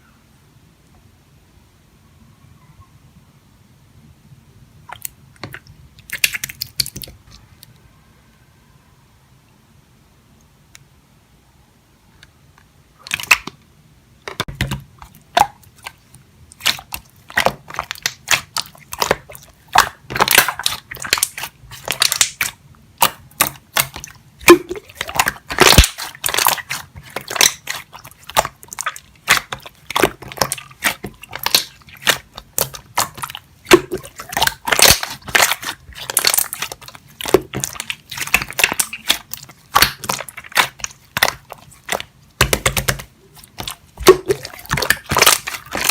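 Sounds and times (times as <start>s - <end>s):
slime squished by hand: 4.9s - 7.4s, 13.0s - 13.6s, 14.3s - 45.9s.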